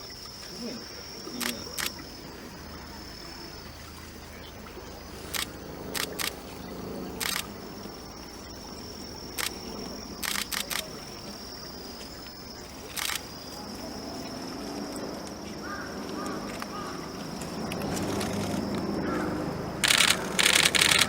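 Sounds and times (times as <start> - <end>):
high insect trill: 0.0 - 21.0
camera shutter clicks: 5.3 - 6.4, 7.2 - 7.5, 10.2 - 10.9, 19.8 - 21.0.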